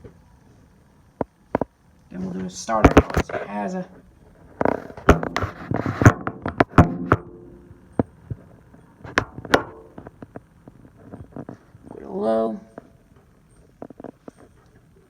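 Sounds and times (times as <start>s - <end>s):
sharp knocks and clicks: 2.8s - 3.4s, 4.6s - 11.6s.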